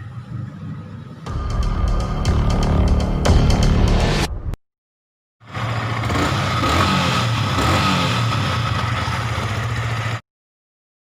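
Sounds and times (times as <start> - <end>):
motorcycle engine running: 5.4 - 10.2.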